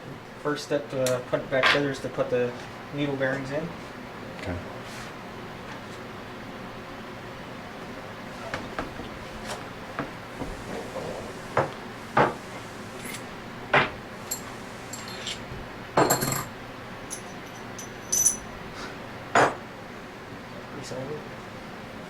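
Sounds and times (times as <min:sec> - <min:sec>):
high metallic ringing: 0:14.2 - 0:15.4, 0:16.0 - 0:18.6
metal parts clinking on workbench: 0:14.3 - 0:15.4, 0:17.1 - 0:18.5.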